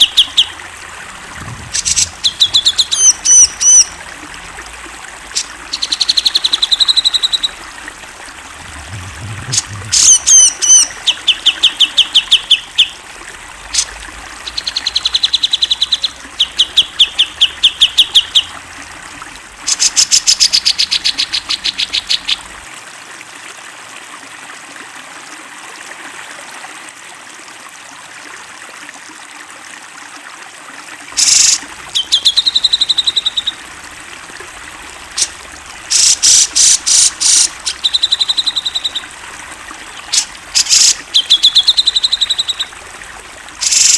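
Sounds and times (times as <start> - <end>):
bulbul singing whistled notes: 0.0 - 0.7, 1.7 - 4.1, 5.3 - 7.7, 8.9 - 13.0, 31.2 - 33.7, 35.2 - 43.9
steady background hiss: 31.2 - 43.9.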